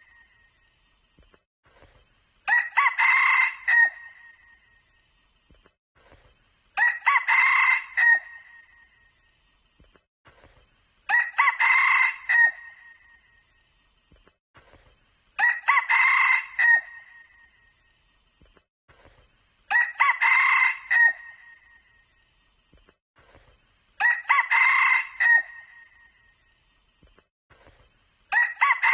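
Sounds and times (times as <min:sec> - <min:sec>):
rooster crowing: 0:02.5 - 0:04.3, 0:06.8 - 0:08.4, 0:11.1 - 0:12.8, 0:15.4 - 0:17.2, 0:19.7 - 0:21.5, 0:24.0 - 0:25.8, 0:28.3 - 0:28.9.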